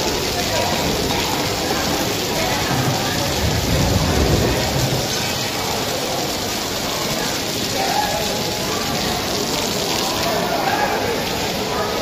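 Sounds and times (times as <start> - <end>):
heavy rain on stone paving: 0.0 - 12.0.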